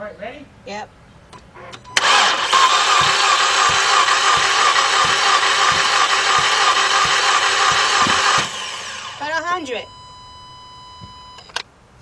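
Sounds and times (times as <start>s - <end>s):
starter motor cranking engine: 1.9s - 9.4s.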